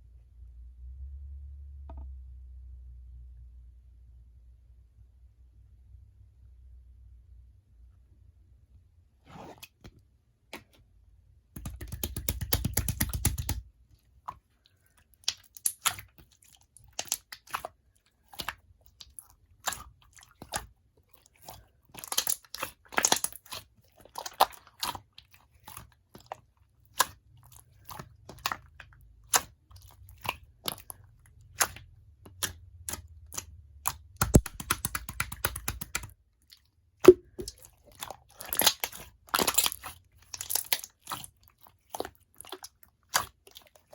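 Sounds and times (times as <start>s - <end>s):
slime squished by hand: 11.6s - 13.7s, 15.0s - 43.9s.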